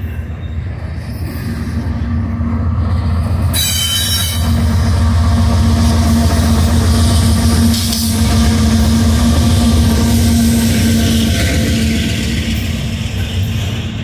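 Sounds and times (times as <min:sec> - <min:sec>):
diesel locomotives passing: 0:00.0 - 0:14.0
high-pitched squeal: 0:03.2 - 0:14.0.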